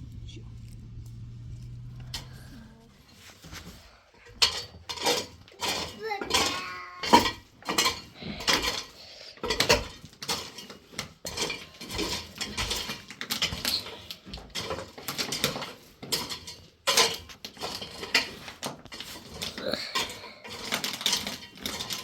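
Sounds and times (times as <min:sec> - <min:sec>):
hard objects clattering: 0:00.0 - 0:22.0.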